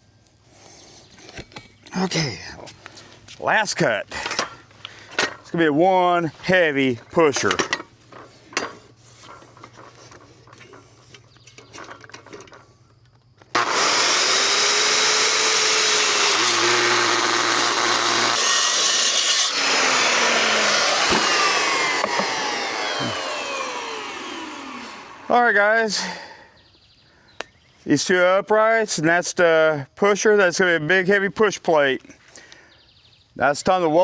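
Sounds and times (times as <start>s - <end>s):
power saw cutting steel: 13.5s - 25.3s
saw blade winding down: 13.5s - 25.4s.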